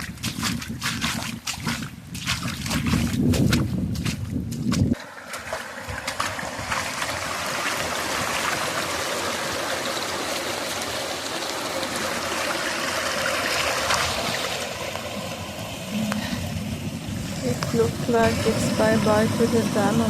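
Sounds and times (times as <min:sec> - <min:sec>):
stream water rushing: 0:05.0 - 0:20.0.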